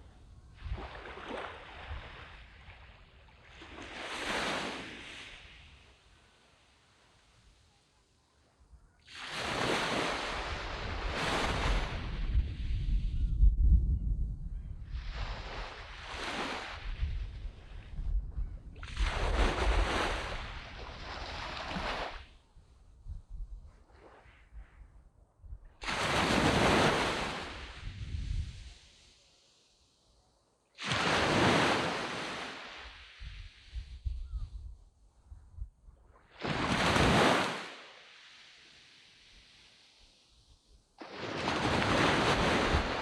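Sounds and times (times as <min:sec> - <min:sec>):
sea waves breaking on beach: 0:00.6 - 0:06.1, 0:09.1 - 0:12.7, 0:15.0 - 0:17.6, 0:18.8 - 0:22.3, 0:25.8 - 0:29.3, 0:30.8 - 0:34.0, 0:36.2 - 0:40.3, 0:41.0 - 0:43.0.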